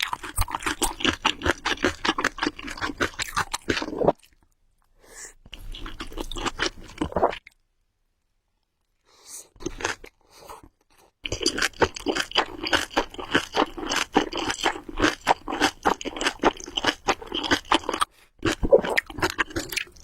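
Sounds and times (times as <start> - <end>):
wet chewing of noodles: 0.0 - 4.4, 9.6 - 20.0.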